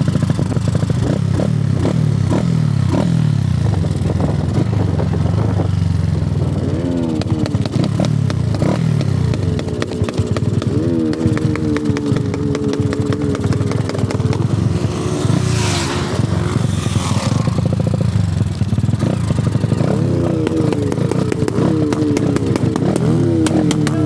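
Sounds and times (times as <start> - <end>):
motorcycle engine revving: 0.0 - 24.0
wind rushing: 13.2 - 18.0.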